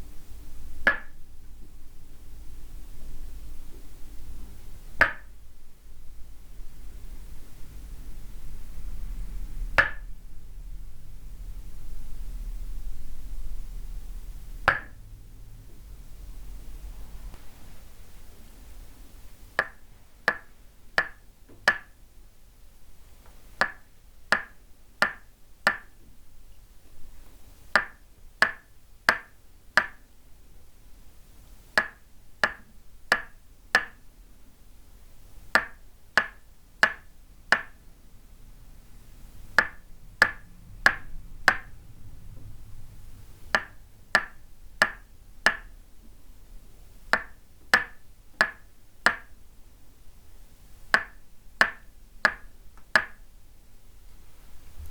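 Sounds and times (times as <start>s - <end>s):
wooden mallet tapping wooden stake: 0.8s - 1.2s, 5.0s - 5.3s, 9.8s - 10.1s, 14.6s - 15.0s, 19.6s - 22.0s, 23.6s - 25.9s, 27.8s - 30.0s, 31.8s - 34.0s, 35.6s - 37.8s, 39.6s - 41.7s, 43.5s - 45.7s, 47.1s - 49.3s, 50.9s - 53.2s.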